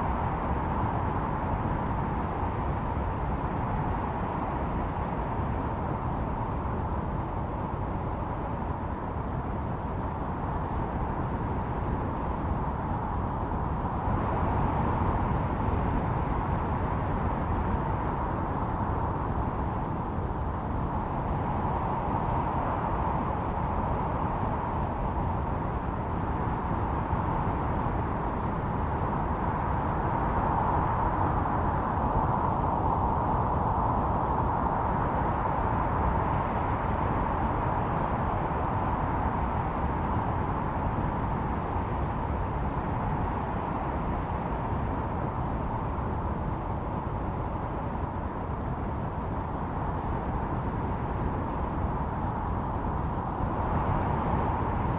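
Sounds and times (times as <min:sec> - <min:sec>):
howling snowstorm wind: 0:00.0 - 0:54.9.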